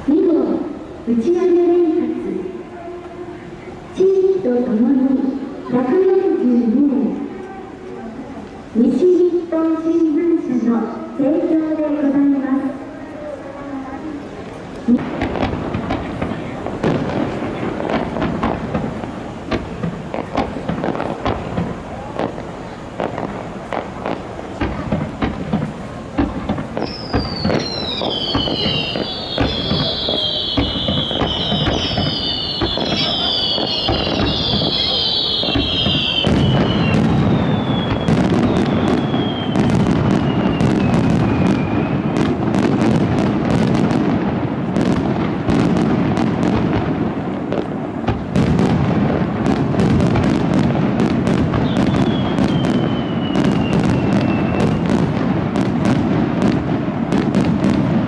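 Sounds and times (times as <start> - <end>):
fireworks crackling: 0.0 - 58.0
firework shells bursting: 14.5 - 58.0
whistling firework shells: 14.8 - 42.8, 51.3 - 56.0.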